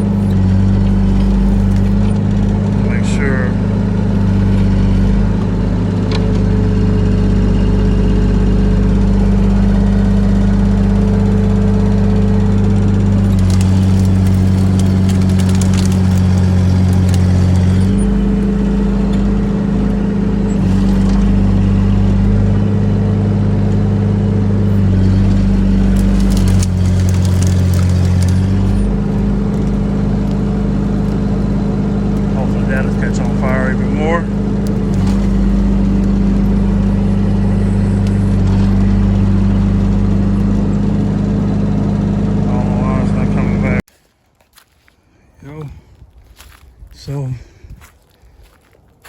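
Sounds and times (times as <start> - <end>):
clattering and scraping: 0.0 - 22.6, 24.6 - 41.2
excavator diesel engine working: 0.0 - 43.9.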